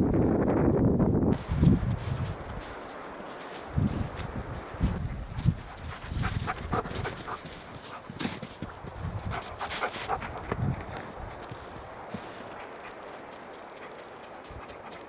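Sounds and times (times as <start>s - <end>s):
footsteps crunching through snow: 1.4s - 15.0s
dog panting: 5.5s - 8.2s, 9.2s - 10.6s, 12.1s - 15.0s.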